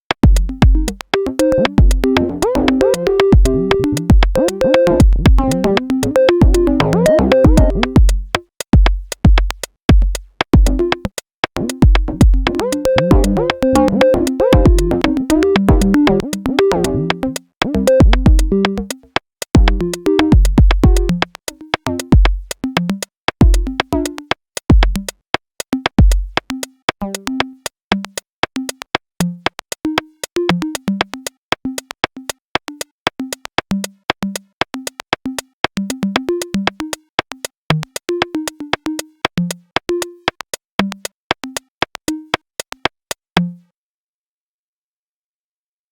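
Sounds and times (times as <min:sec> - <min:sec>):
drum machine kick: 0:00.2 - 0:16.8, 0:17.6 - 0:25.2, 0:25.8 - 0:26.6
fast ticking clicks: 0:00.2 - 0:43.2
synth notes: 0:00.4 - 0:08.0, 0:11.6 - 0:19.0.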